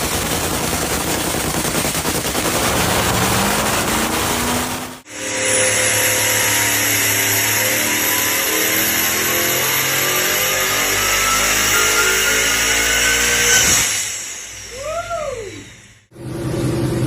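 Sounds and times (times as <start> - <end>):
engine revving: 2.0 - 14.6.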